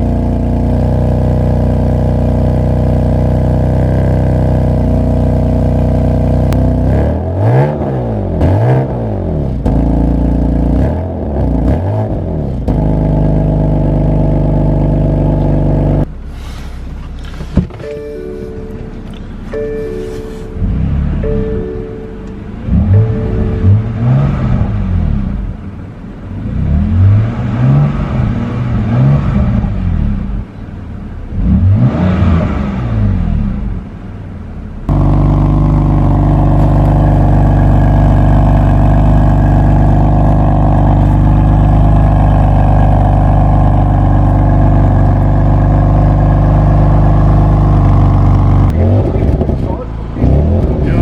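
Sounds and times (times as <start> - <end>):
car engine revving: 0.0 - 51.0.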